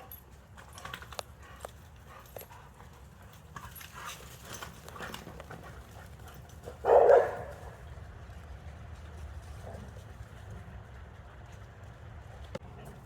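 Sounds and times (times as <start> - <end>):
dog barking: 6.8 - 7.8.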